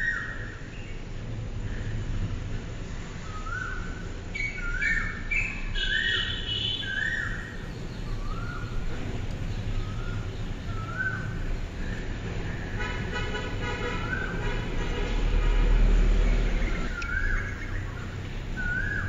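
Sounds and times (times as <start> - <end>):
higher bird chirps: 3.2 - 14.8, 16.1 - 19.0
low steady rumble: 7.4 - 19.0.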